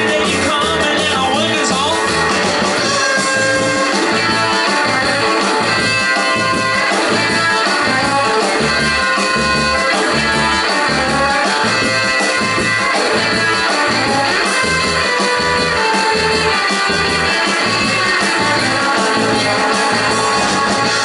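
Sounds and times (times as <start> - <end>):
electric guitar lead: 0.0 - 21.0
rock and roll band playing: 0.0 - 21.0.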